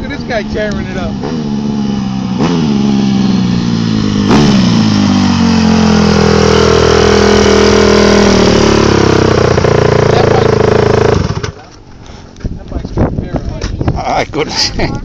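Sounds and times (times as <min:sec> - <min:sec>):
dirt bike engine revving: 0:00.0 - 0:11.6.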